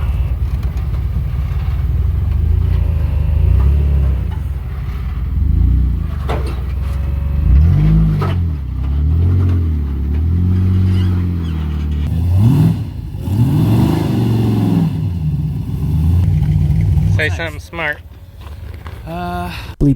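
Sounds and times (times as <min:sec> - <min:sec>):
engine revving: 0:00.0 - 0:19.2.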